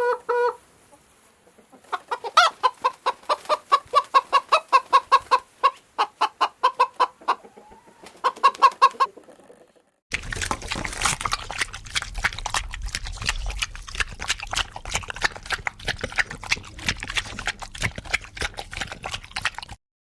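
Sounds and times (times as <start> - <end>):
low rumble: 10.1 - 19.4.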